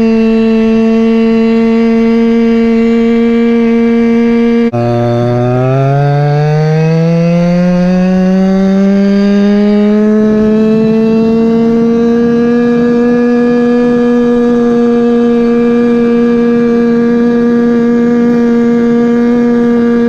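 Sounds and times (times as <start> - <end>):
scooter two-stroke engine accelerating: 0.0 - 20.0.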